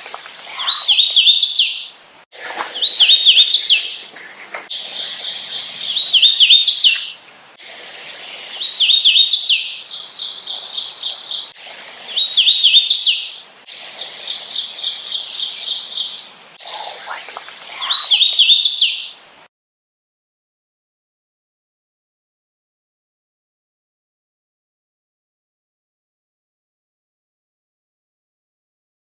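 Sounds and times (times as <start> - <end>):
warbler singing whistled notes: 0.0 - 7.3, 8.1 - 19.3
rapid repeated high bird notes: 7.8 - 19.2.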